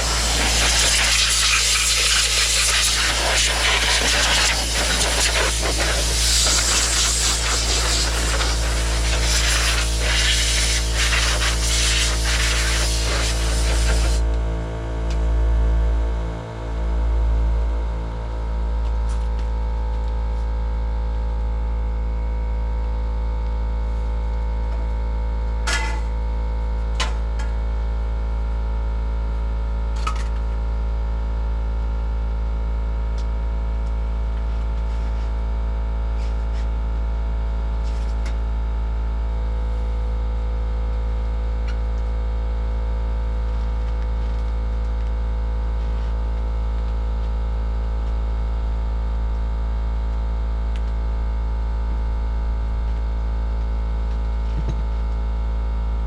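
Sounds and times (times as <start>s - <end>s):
loud low hum with steady tones: 0.0s - 56.0s.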